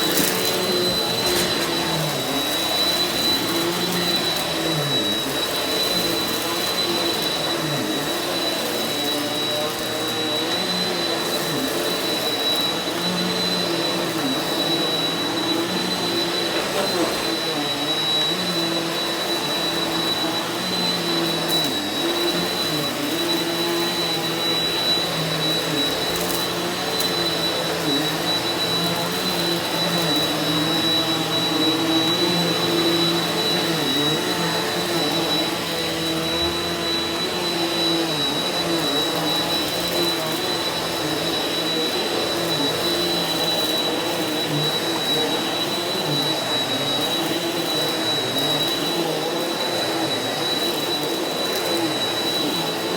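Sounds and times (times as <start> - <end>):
vacuum cleaner running over carpet: 0.0 - 52.9.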